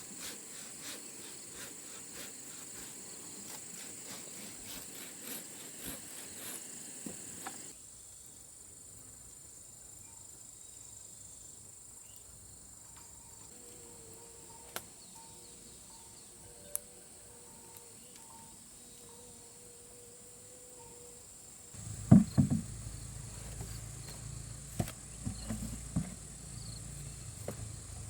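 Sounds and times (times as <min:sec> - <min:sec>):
insects chirring: 0:00.0 - 0:28.0
light knocks: 0:21.8 - 0:22.9.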